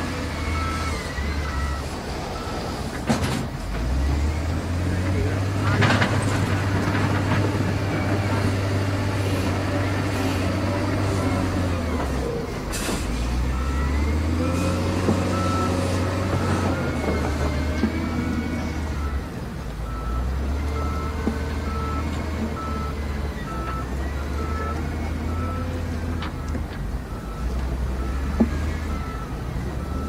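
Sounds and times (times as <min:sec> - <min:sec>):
diesel engine droning: 0:00.0 - 0:30.0
reversing alarm beeping: 0:00.3 - 0:02.8, 0:13.4 - 0:30.0.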